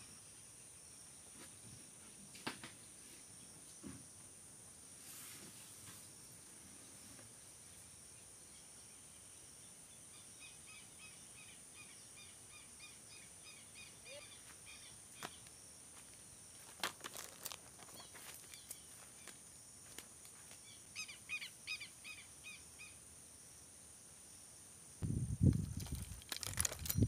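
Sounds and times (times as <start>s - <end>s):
high insect drone: 0.0s - 27.0s
rustling: 16.6s - 20.6s, 25.5s - 27.0s.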